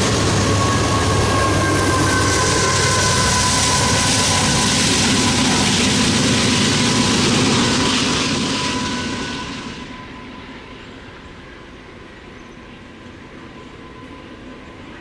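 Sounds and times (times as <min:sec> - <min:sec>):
high wheel squeal: 0:00.0 - 0:05.2, 0:07.7 - 0:11.0
train wheels rumbling on rail: 0:00.0 - 0:15.0.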